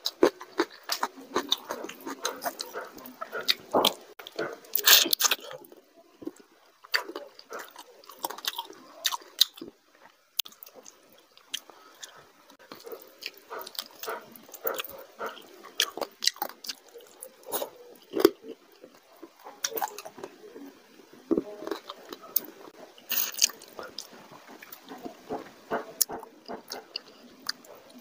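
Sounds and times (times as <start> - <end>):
fingers mixing food on plate: 0.0 - 9.6, 21.3 - 28.0
person chewing food: 0.0 - 28.0.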